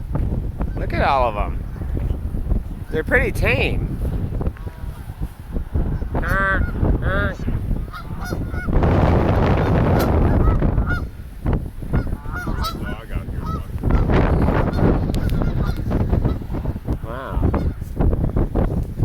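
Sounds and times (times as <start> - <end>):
wind buffeting microphone: 0.0 - 19.0
geese honking: 6.0 - 11.1, 11.9 - 17.8.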